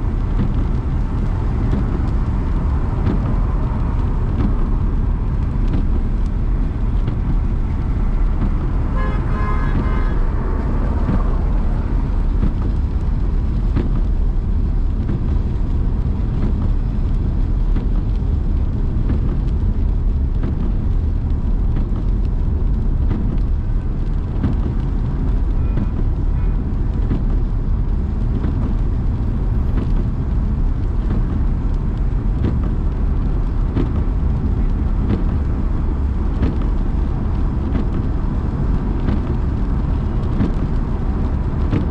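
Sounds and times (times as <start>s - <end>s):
car driving through traffic: 0.0s - 41.9s
road and tyre noise: 0.0s - 41.9s
car horn: 8.9s - 10.8s.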